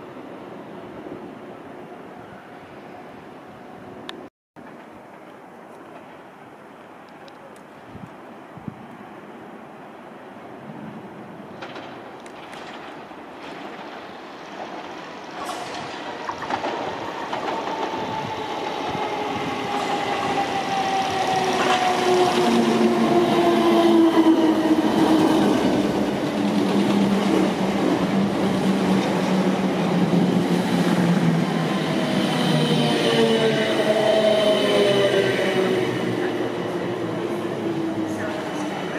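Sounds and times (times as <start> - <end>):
wheels rattling on rail: 11.4 - 38.9.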